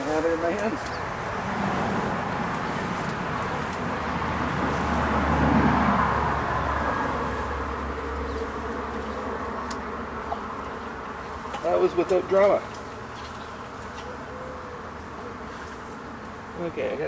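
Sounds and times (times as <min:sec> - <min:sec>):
honeybees buzzing: 0:00.0 - 0:07.3.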